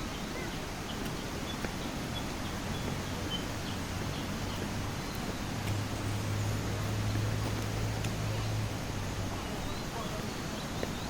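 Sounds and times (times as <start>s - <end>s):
faint bird chirps: 0.0s - 5.5s
steady rushing background noise: 0.0s - 11.0s.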